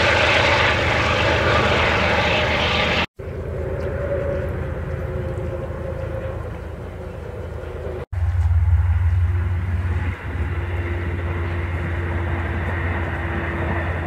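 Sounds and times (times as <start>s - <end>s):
passenger train rumbling past: 0.0s - 14.0s.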